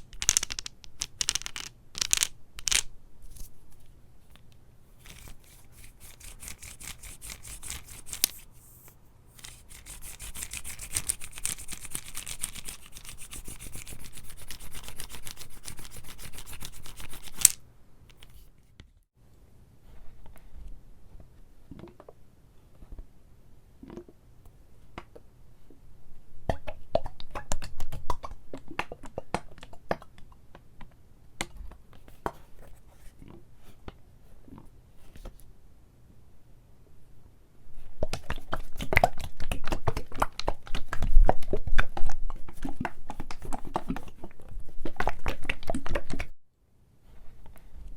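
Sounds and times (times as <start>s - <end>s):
hands handling an object: 0.0s - 19.0s
close-up rubbing or scratching: 5.0s - 17.6s, 42.5s - 44.9s.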